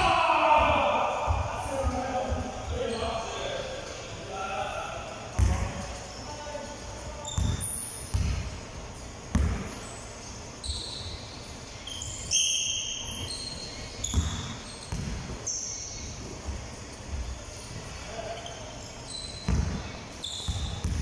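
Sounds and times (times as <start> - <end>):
shoes squeaking on floor: 1.6 - 4.0, 7.0 - 8.2, 9.5 - 21.0
basketball bouncing: 5.4 - 5.8, 7.3 - 8.6, 9.3 - 9.8, 14.0 - 15.4, 19.4 - 21.0.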